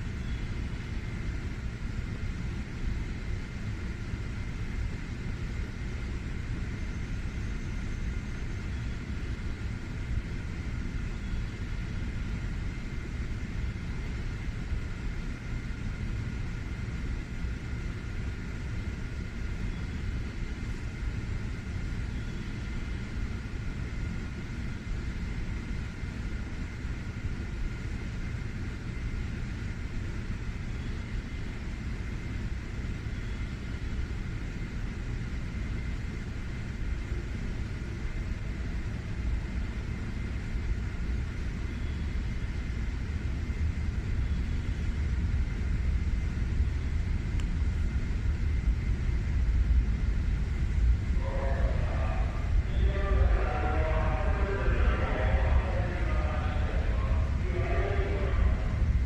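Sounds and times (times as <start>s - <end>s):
train rumble and hum: 0.0s - 59.0s
faint steady high tones: 50.9s - 59.0s.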